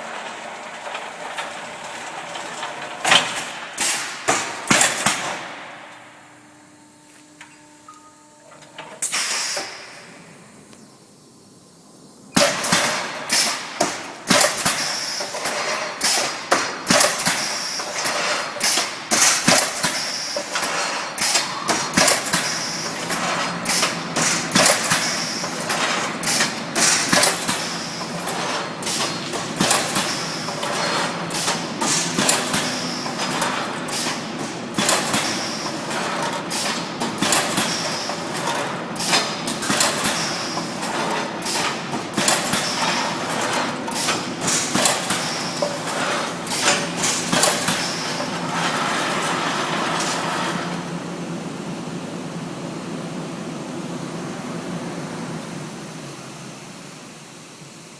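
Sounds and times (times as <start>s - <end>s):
machine whirring: 12.3s - 51.0s.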